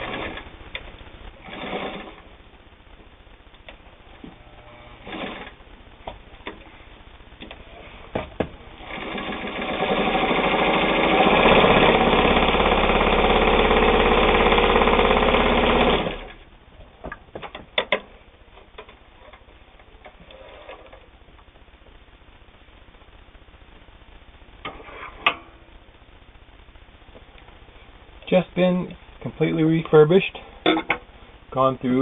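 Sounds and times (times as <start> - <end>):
sewing machine running: 0.0 - 0.5, 1.4 - 2.2, 4.6 - 5.6, 8.7 - 16.4.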